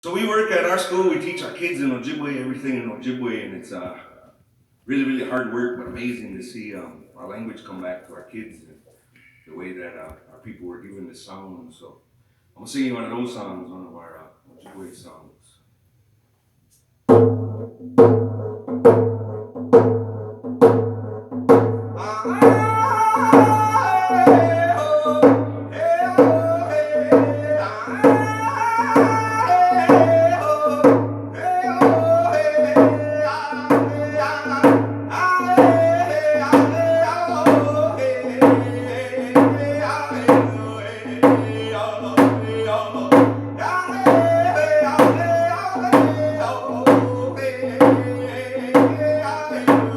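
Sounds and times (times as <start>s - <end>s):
drum beat: 17.1s - 49.9s
man singing: 21.9s - 49.9s.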